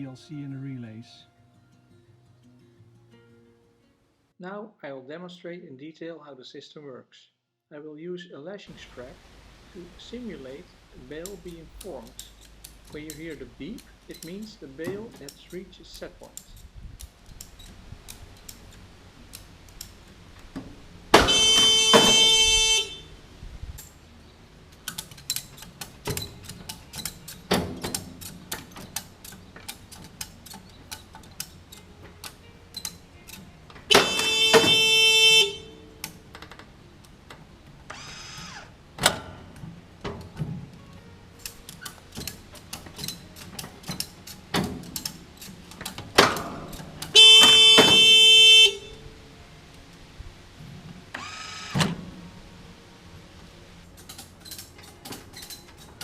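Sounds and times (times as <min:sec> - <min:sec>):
irregular clicks and knocks: 0:24.6 - 0:35.4, 0:36.0 - 0:38.0, 0:38.9 - 0:48.6, 0:53.8 - 0:56.0.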